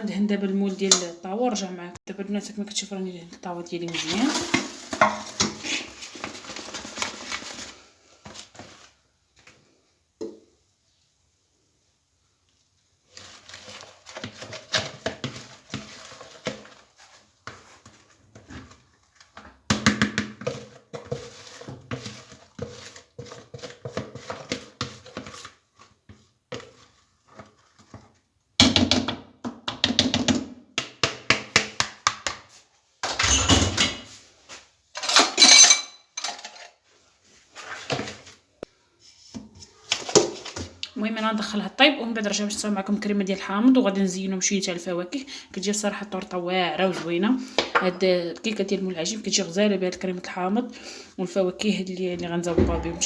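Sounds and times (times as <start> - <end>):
heavy thud: 52.5 - 53.0.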